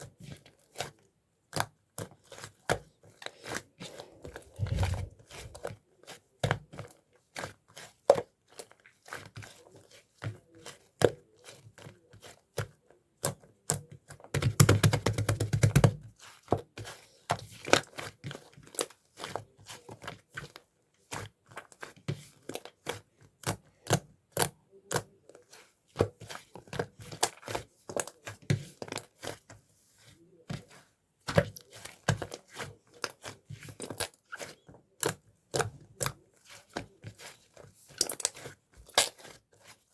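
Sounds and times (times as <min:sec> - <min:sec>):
slime squished by hand: 0:03.4 - 0:05.7
slime crackling: 0:04.2 - 0:05.6.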